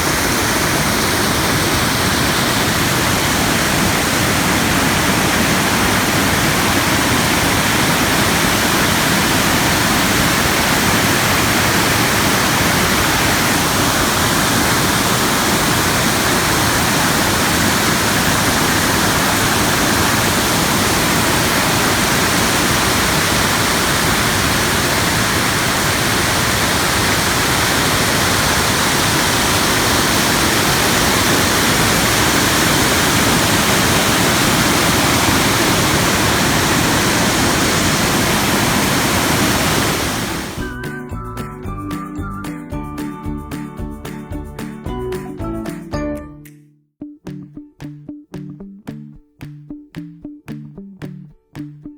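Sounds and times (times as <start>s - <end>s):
waterfall rushing: 0.0s - 40.6s.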